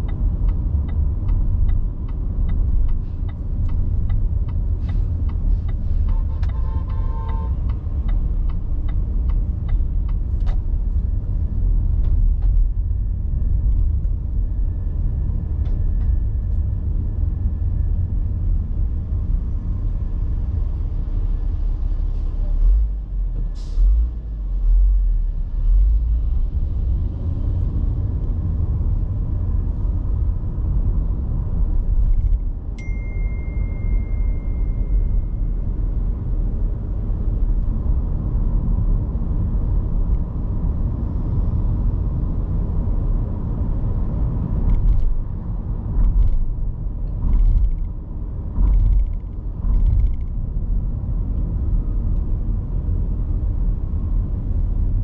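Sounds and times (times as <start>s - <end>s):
car road and engine rumble: 0.0s - 55.0s
steady high beep: 32.8s - 35.5s.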